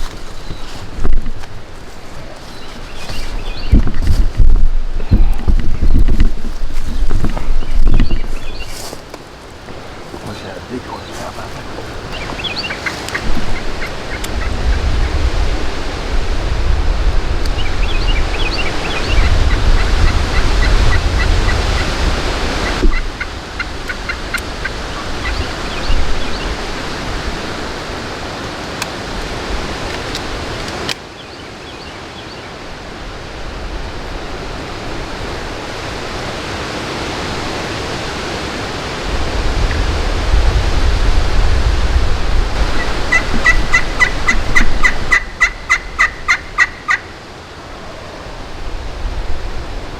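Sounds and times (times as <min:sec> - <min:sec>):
wind rumble on microphone: 0:00.0 - 0:09.0, 0:09.6 - 0:31.0, 0:32.6 - 0:49.9
turkeys gobbling: 0:09.7 - 0:15.4, 0:18.2 - 0:27.9, 0:42.6 - 0:48.6.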